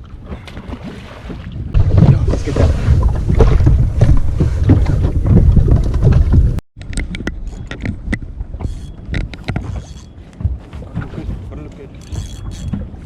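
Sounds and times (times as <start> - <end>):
wind rumbling on microphone: 0.0 - 13.0
sharp knocks and clicks: 3.3 - 13.0.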